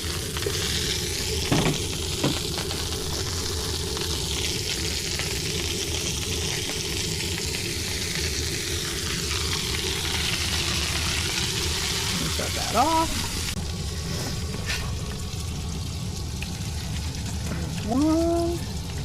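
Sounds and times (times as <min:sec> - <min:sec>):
food sizzling: 0:00.0 - 0:19.0
low hum: 0:00.0 - 0:19.0
short knocks: 0:01.5 - 0:02.5.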